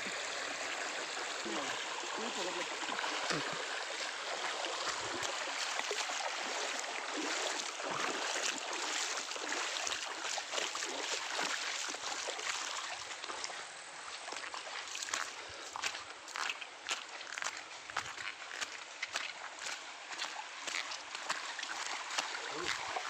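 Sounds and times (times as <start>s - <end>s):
stream rushing over rocks: 0.0s - 16.5s, 19.3s - 23.0s.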